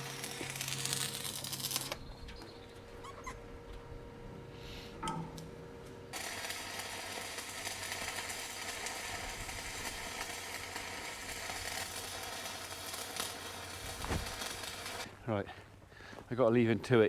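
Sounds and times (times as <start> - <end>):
arc welding crackling sizzle: 0.0 - 2.2, 5.4 - 15.1.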